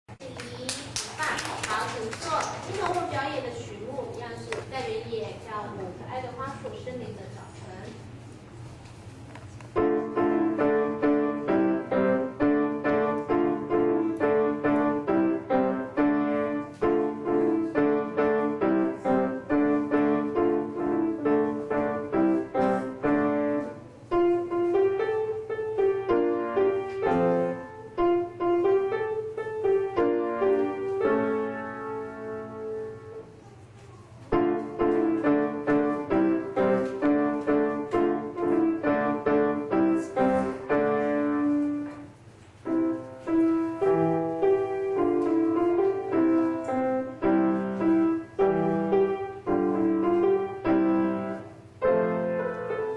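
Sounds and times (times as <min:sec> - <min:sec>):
piano-toned keyboard chords: 0:09.8 - 0:33.4, 0:34.3 - 0:52.9.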